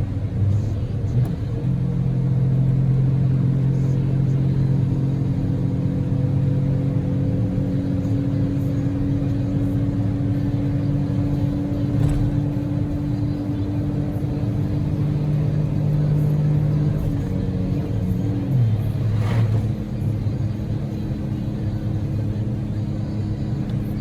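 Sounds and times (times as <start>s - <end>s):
car engine humming: 0.0s - 24.0s
road noise: 0.0s - 24.0s.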